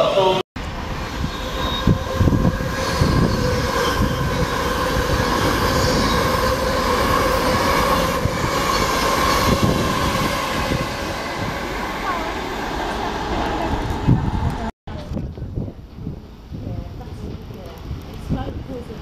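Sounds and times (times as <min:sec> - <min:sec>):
train whine: 0:00.0 - 0:14.7
train wheels rumbling on rail: 0:00.6 - 0:19.0.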